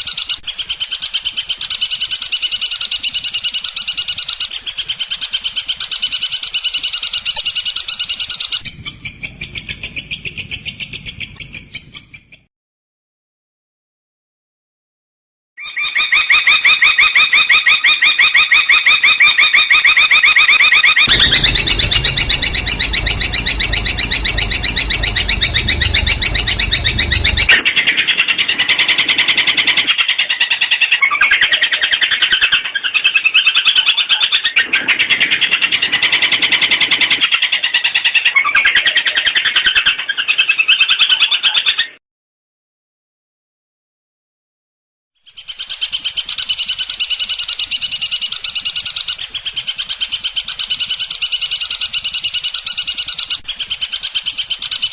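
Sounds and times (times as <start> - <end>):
shrike singing trills and chatter: 21.0 - 27.6.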